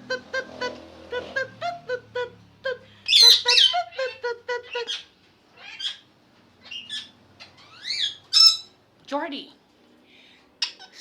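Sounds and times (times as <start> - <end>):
parrots harsh squawks: 3.1 - 8.8.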